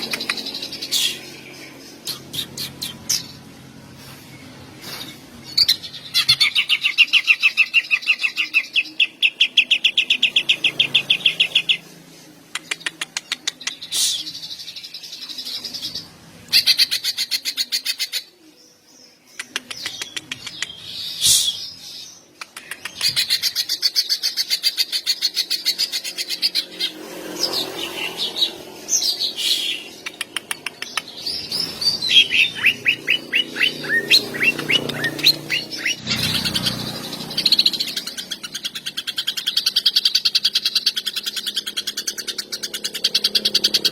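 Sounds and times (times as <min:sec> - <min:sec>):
bird chirps: 0:22.2 - 0:43.9
bird singing fast rattling trills: 0:23.0 - 0:43.9.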